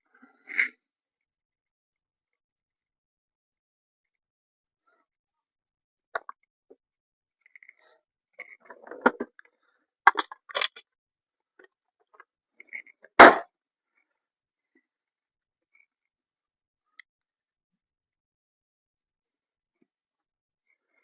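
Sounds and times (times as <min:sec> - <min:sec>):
hard objects clicking and knocking: 0:08.4 - 0:09.4, 0:10.1 - 0:10.8, 0:12.1 - 0:13.4.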